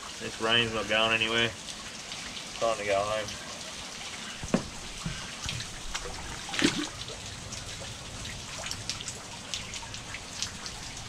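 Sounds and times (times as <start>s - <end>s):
rain hissing on water: 0.0s - 11.0s
raindrop taps: 4.4s - 6.9s
fish splash at water surface: 4.5s - 7.2s.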